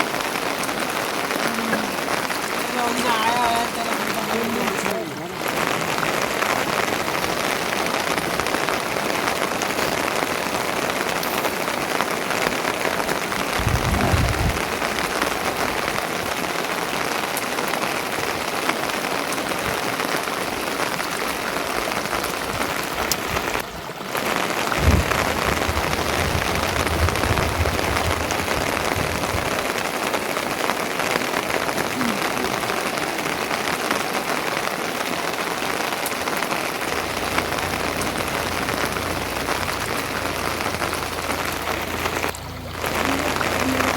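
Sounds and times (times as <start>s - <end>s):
low rumbles: 0.0s - 16.1s, 22.2s - 30.1s, 36.7s - 43.9s
steady rain falling: 0.0s - 43.9s.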